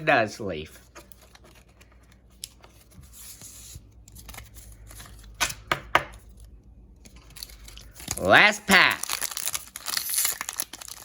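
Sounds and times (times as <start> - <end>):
trading cards rustling and sliding: 0.6 - 5.4.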